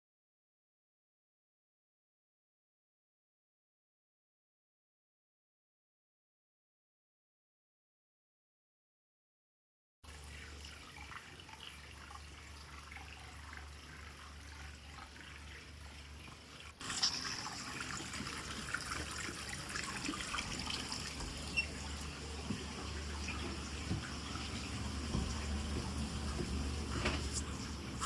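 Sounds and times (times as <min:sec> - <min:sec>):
low steady hum: 0:10.1 - 0:28.0
water running from a tap: 0:10.1 - 0:28.0.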